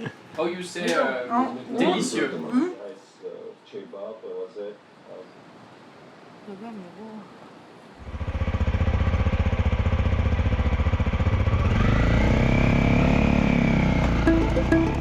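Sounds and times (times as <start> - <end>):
motorcycle engine revving: 8.0 - 14.3.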